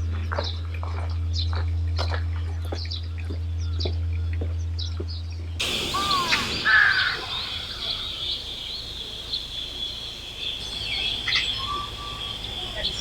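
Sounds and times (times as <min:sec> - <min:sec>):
birds calling: 0:00.2 - 0:13.0
loud harsh caw: 0:05.6 - 0:11.6.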